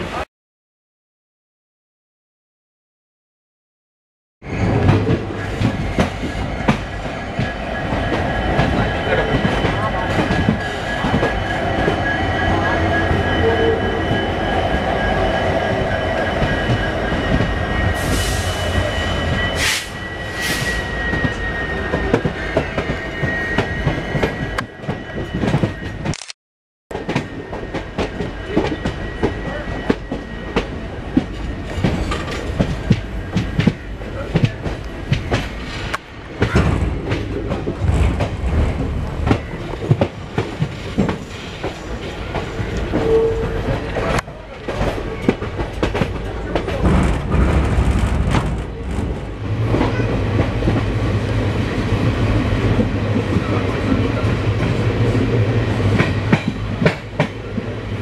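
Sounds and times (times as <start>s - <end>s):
train rumble: 4.4s - 26.1s, 26.9s - 58.0s
high-pitched wheel squeal: 5.8s - 26.0s, 41.3s - 44.0s.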